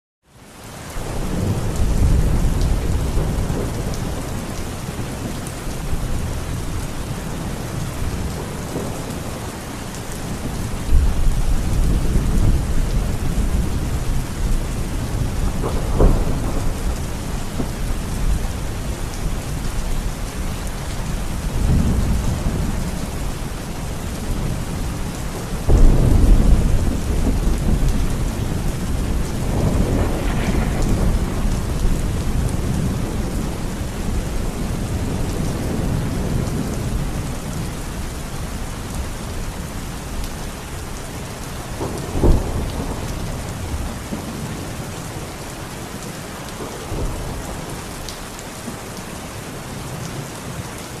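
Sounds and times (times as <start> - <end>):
steady rain: 0.2 - 51.0
thunder rumbling: 1.0 - 38.1, 41.6 - 44.7
sharp thunder clap: 15.2 - 18.4, 25.7 - 33.8.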